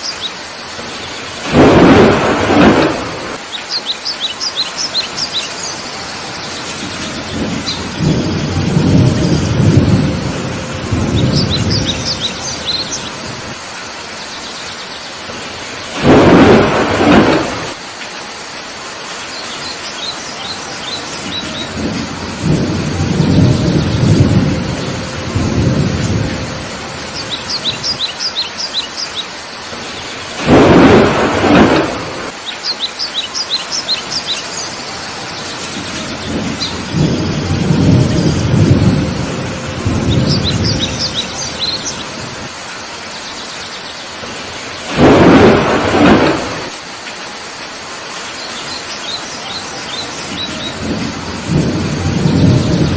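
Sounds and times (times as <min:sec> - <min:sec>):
bird chirping: 0:00.0 - 0:00.4, 0:03.4 - 0:08.5, 0:11.1 - 0:13.4, 0:27.0 - 0:30.9, 0:32.4 - 0:37.5, 0:40.1 - 0:42.3, 0:48.4 - 0:50.9
heavy rain: 0:00.0 - 0:52.9
thunder rumbling: 0:00.8 - 0:03.5, 0:05.9 - 0:13.7, 0:15.3 - 0:17.9, 0:20.7 - 0:28.7, 0:29.7 - 0:32.4, 0:34.9 - 0:42.6, 0:44.2 - 0:47.0, 0:49.9 - 0:52.9
sharp thunder claps: 0:01.4 - 0:03.4, 0:06.8 - 0:13.6, 0:15.9 - 0:17.8, 0:21.2 - 0:28.1, 0:30.3 - 0:32.4, 0:35.7 - 0:42.6, 0:44.8 - 0:46.8, 0:50.2 - 0:52.9.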